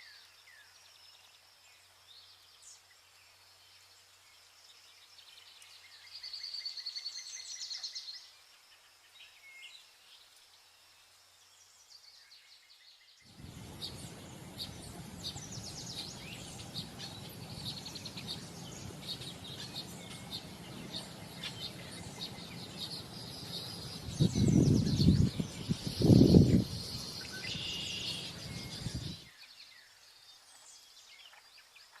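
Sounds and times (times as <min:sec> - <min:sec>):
steady hiss: 0:13.3 - 0:29.3
loud low rumbles: 0:13.4 - 0:27.3
parrots chirping: 0:13.4 - 0:29.2.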